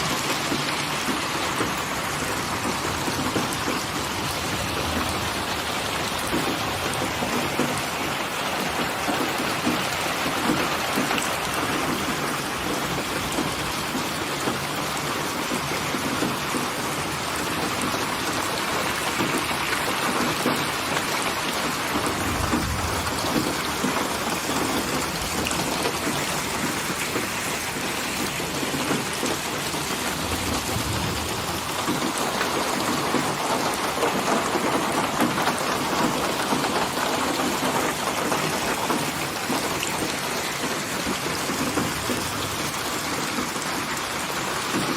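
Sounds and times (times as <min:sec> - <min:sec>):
rain falling: 0:00.0 - 0:44.9
distant thunder rumbles: 0:21.2 - 0:36.4.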